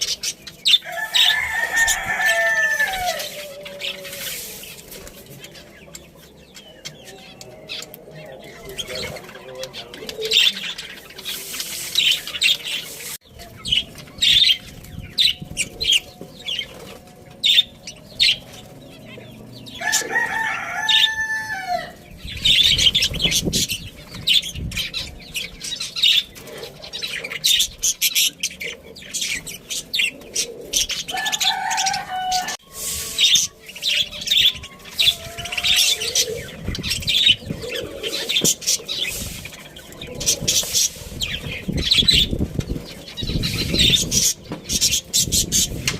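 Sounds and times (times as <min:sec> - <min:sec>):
rooster crowing: 0:00.8 - 0:04.2, 0:19.7 - 0:22.0, 0:31.1 - 0:33.5, 0:34.7 - 0:36.4.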